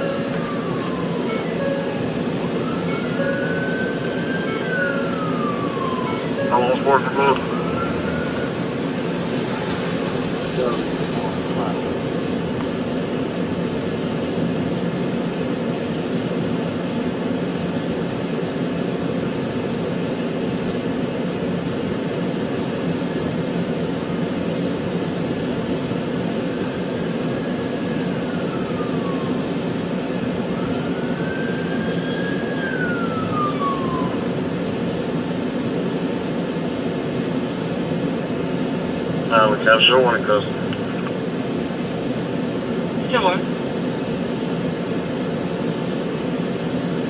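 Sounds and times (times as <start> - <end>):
high tones sliding downward: 0.0 - 12.9
car engine and road noise: 0.0 - 47.0.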